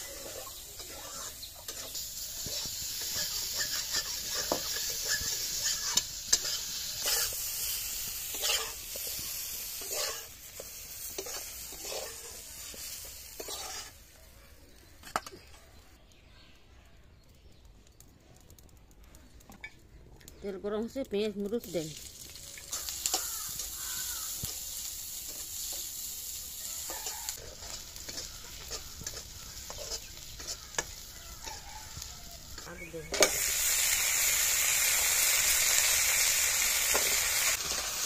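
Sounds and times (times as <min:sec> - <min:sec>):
metal spatula scraping a pan: 0:00.0 - 0:14.0, 0:26.8 - 0:31.7
vegetables sizzling in hot oil: 0:00.0 - 0:14.2, 0:21.2 - 0:38.0.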